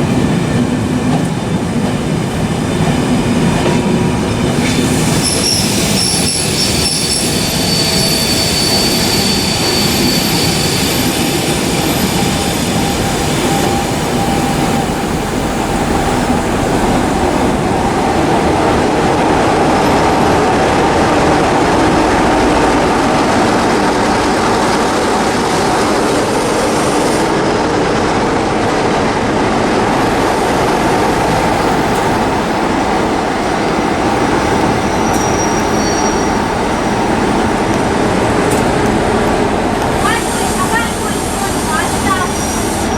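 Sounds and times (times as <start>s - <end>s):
train wheels rumbling on rails: 0.0s - 42.9s
high wheel squeal: 4.6s - 15.0s, 34.4s - 37.2s.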